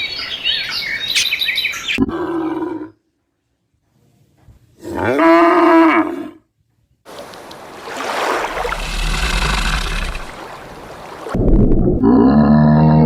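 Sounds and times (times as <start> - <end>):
rough noisy animal call: 8.4 - 10.5
animal pitched call: 8.6 - 10.4.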